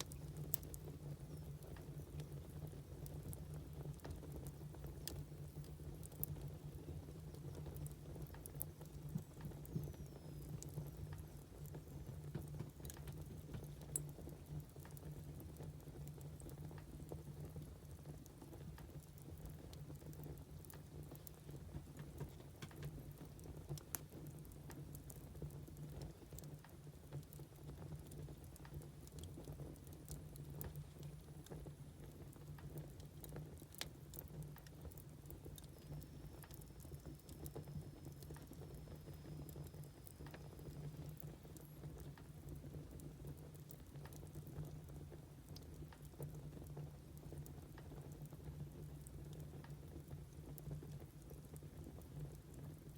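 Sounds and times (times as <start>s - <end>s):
firewood crackling and popping: 0.0s - 52.9s
low steady hum: 0.0s - 52.9s
faint thin whistle: 9.7s - 10.9s.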